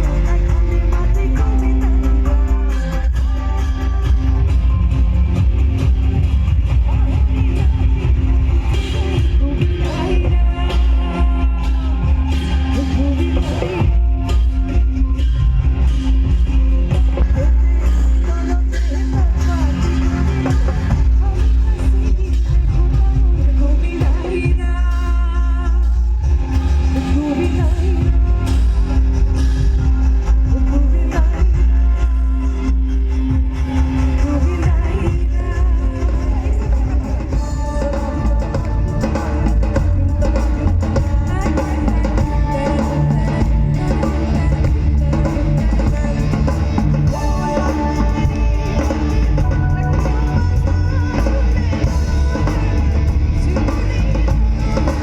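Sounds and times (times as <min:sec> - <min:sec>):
drum kit: 0:00.0 - 0:55.0
heavy bass: 0:00.0 - 0:55.0
live band music: 0:00.0 - 0:55.0
person singing: 0:00.0 - 0:55.0
electric guitar: 0:26.4 - 0:55.0.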